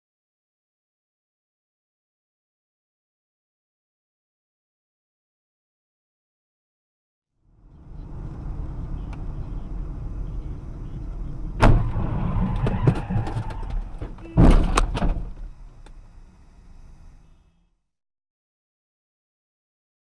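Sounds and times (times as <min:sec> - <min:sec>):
car road rumble: 0:07.4 - 0:17.7
vehicle crash: 0:11.4 - 0:15.8.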